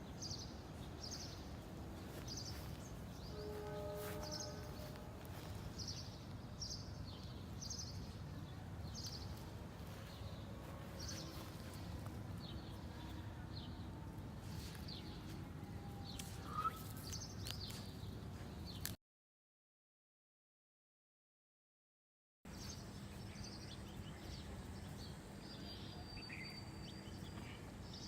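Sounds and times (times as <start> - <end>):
bird chirping: 16.0 - 18.1, 22.5 - 28.0
brief squeak: 16.4 - 16.9.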